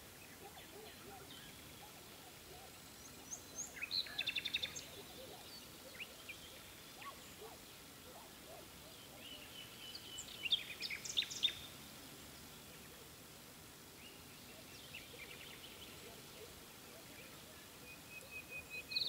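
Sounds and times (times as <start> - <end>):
faint background hiss: 0.0 - 19.0
small bird chirping: 0.4 - 7.6, 8.2 - 11.7.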